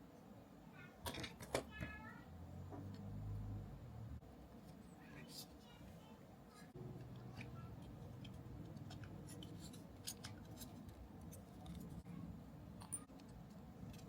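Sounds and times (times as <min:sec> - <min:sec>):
low steady hum: 0:00.0 - 0:14.0
plastic parts snipping and clicking: 0:07.4 - 0:12.0.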